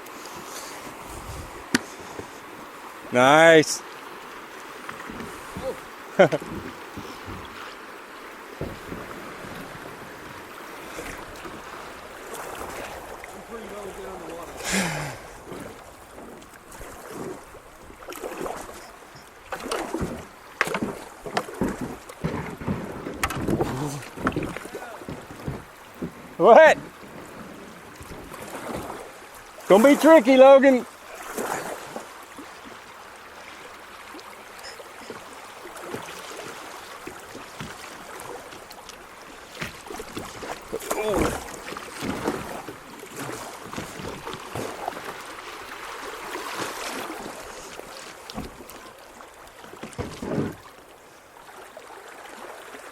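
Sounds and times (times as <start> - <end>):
paddle splashing in water: 0.0 - 52.9.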